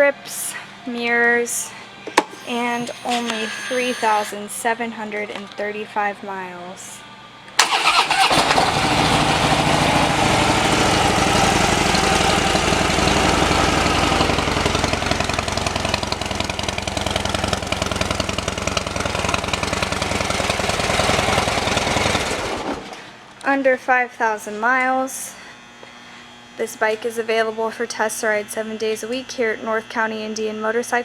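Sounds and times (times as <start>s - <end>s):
starter motor cranking: 7.6s - 23.1s
motorcycle engine idling: 7.8s - 22.6s.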